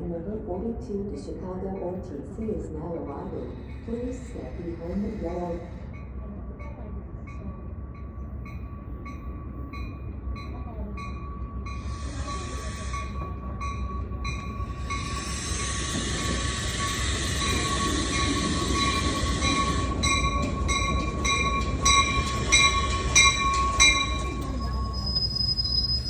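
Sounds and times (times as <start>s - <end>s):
train cars rumbling: 0.1s - 26.0s
train wheels squealing: 3.2s - 6.1s, 11.1s - 26.0s.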